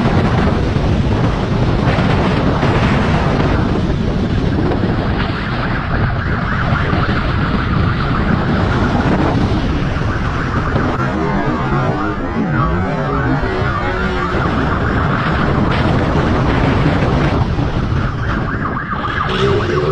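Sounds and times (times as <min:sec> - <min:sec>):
wind noise on microphone: 0:00.0 - 0:19.9
siren wailing: 0:04.4 - 0:19.9.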